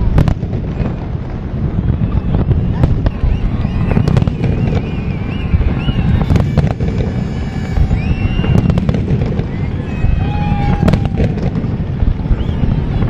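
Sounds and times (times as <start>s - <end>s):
firework shell bursts rumbling: 0.0s - 13.0s
sharp firework cracks: 0.0s - 13.0s
high wavering whistles: 1.8s - 11.1s, 12.2s - 13.0s.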